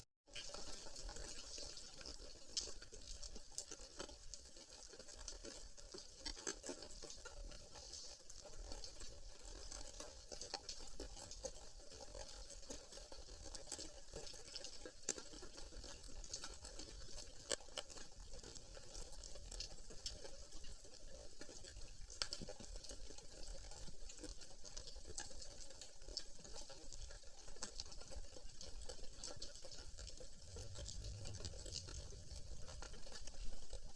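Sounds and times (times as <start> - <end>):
sea water crackling and splashing: 0.3 - 33.9.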